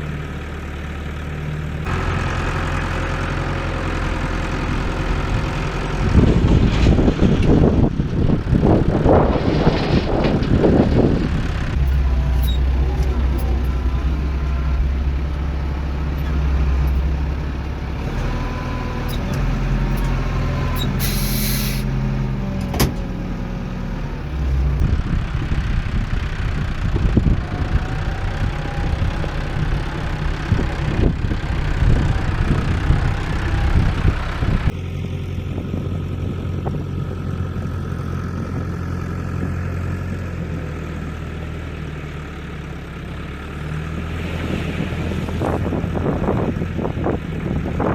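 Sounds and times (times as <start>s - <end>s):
heavy machinery diesel engine: 0.0s - 47.9s
short hiss: 21.0s - 21.9s.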